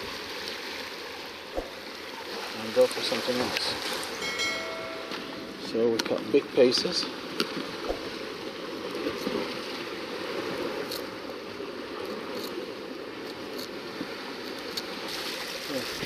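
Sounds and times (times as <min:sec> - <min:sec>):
sea water lapping against rocks: 0:00.0 - 0:16.0.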